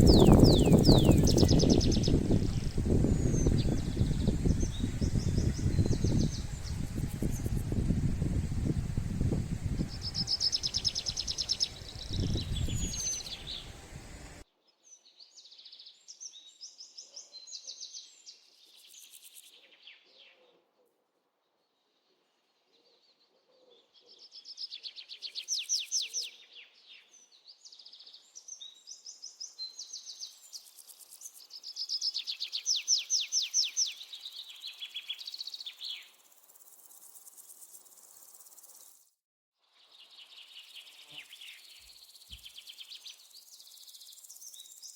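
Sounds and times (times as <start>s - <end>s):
songbird trilled chirps: 0.0s - 14.4s, 31.4s - 37.0s.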